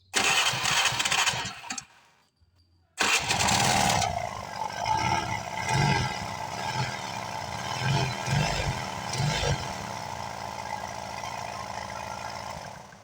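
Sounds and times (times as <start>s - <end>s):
croaking engine noise: 3.0s - 13.0s
scooter engine idling: 3.0s - 13.0s.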